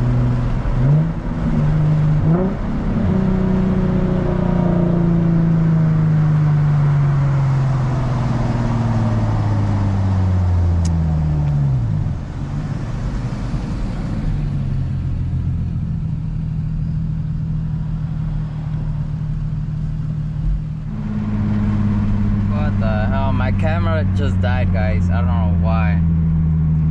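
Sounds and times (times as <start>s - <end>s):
car engine exhaust drone: 0.0s - 26.9s.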